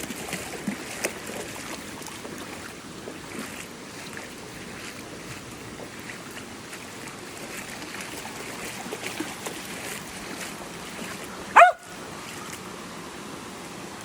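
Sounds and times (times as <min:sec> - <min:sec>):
creek water rushing: 0:00.0 - 0:14.0
dog yelping: 0:11.5 - 0:11.9.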